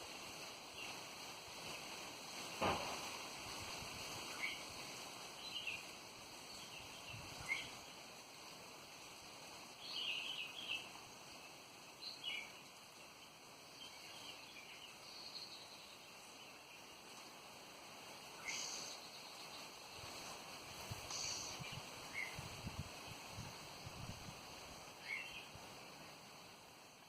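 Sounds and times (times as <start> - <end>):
faint background hiss: 0.0 - 27.0
birds chirping: 18.1 - 24.2, 24.8 - 26.3.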